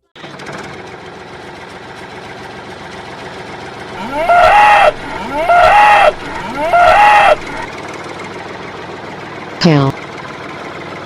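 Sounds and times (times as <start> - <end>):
cow mooing: 4.0 - 7.7.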